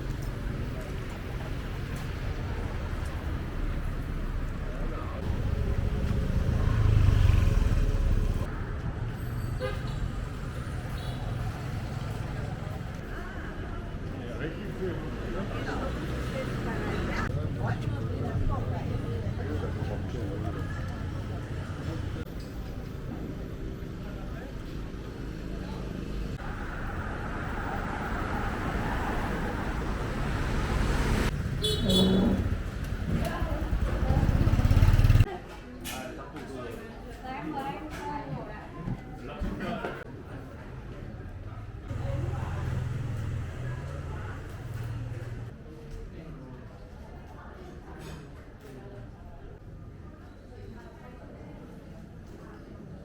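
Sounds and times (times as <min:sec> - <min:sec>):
street traffic noise: 0:00.0 - 0:53.0
motor vehicle passing: 0:05.1 - 0:08.5, 0:26.0 - 0:35.3
short horn toot: 0:31.6 - 0:32.6.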